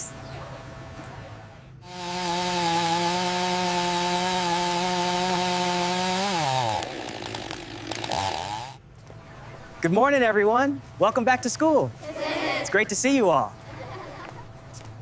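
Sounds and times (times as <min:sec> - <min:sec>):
small petrol engine running: 0:01.8 - 0:08.8.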